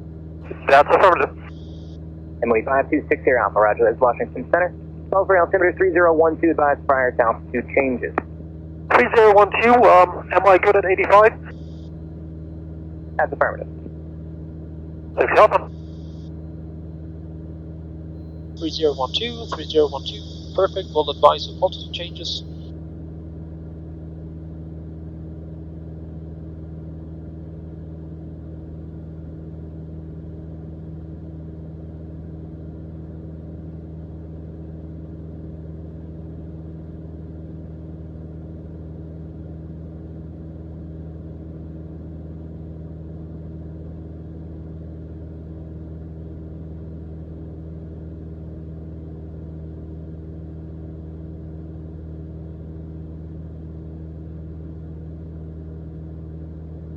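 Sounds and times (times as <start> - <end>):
aircraft engine and propeller droning: 2.4 - 8.2, 18.6 - 22.4.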